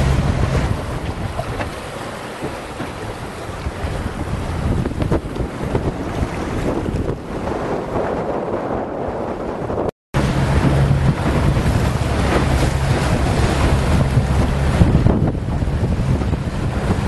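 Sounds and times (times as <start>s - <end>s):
water rushing and splashing: 0.0s - 8.6s, 10.2s - 17.0s
wind buffeting microphone: 0.0s - 17.0s.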